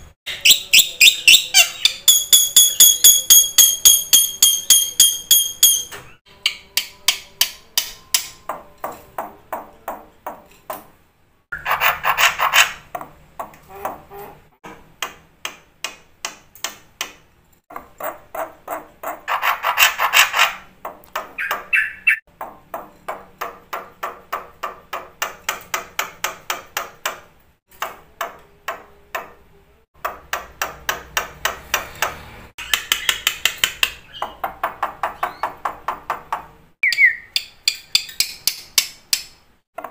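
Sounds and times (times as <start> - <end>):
starling singing: 0.3 - 8.5, 21.2 - 22.3, 32.6 - 35.7, 36.8 - 38.4.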